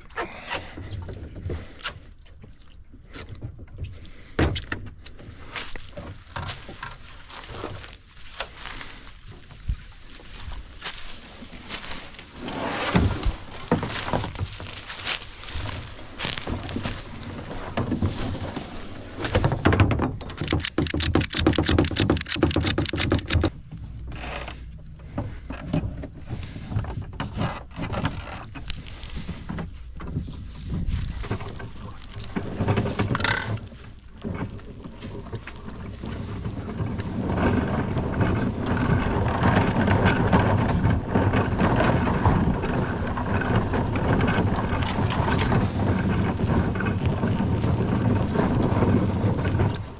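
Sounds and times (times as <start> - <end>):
fast rattling scrape: 20.3 - 23.5.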